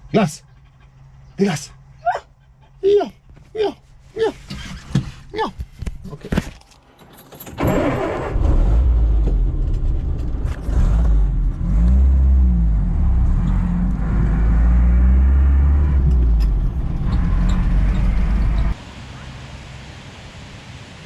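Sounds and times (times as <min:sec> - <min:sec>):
car engine rumbling: 0:07.3 - 0:19.3.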